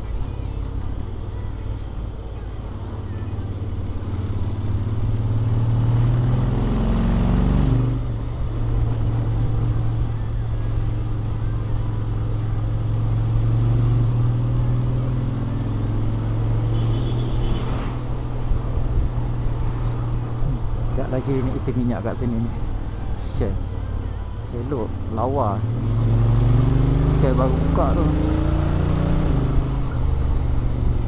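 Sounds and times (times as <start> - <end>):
motorcycle engine accelerating: 3.5 - 10.0, 25.6 - 31.0.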